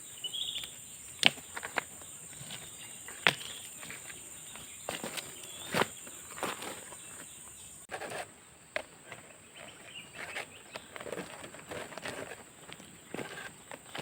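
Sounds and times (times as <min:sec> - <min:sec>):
rustling in leaf litter: 0:02.2 - 0:08.0.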